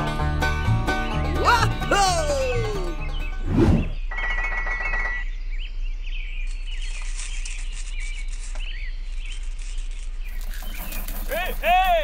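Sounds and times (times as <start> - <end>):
small birds chirping: 1.1 - 12.0.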